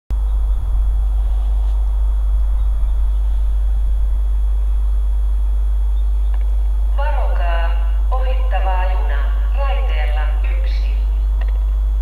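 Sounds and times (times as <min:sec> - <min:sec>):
electric train rumbling: 0:00.1 - 0:12.0
steady hiss: 0:00.2 - 0:07.0.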